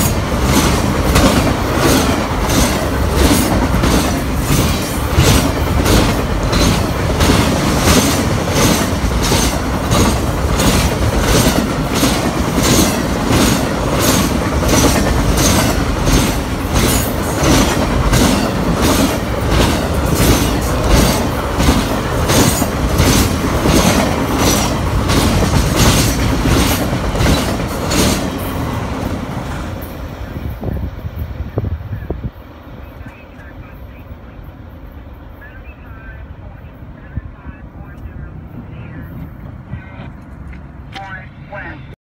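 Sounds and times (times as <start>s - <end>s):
rail clickety-clack: 0.0s - 41.9s
train rumbling past: 0.0s - 42.0s.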